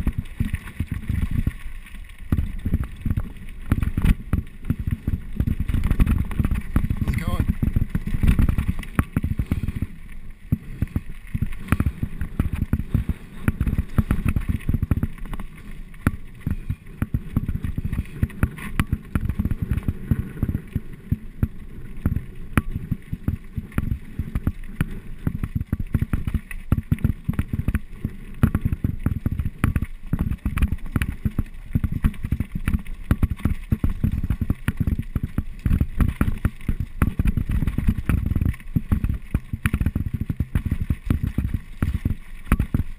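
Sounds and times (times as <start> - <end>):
bike clicks and rattles: 0.0 - 42.9.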